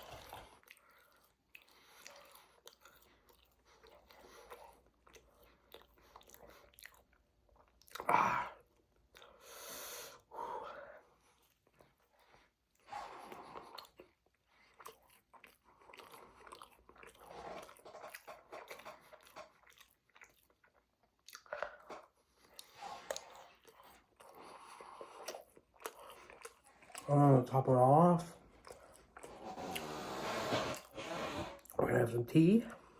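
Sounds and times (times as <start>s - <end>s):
person chewing and crunching food: 0.0s - 10.3s, 11.0s - 31.0s
wet mouth sounds: 12.8s - 27.2s.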